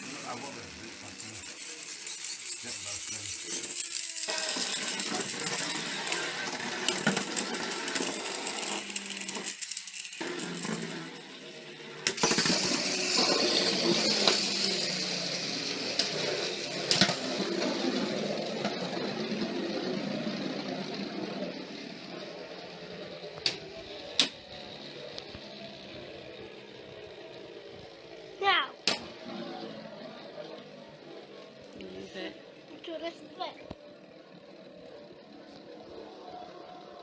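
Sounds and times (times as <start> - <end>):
toy vehicles whirring on track: 0.0 - 37.0
sharp plastic clacks: 28.8 - 29.1.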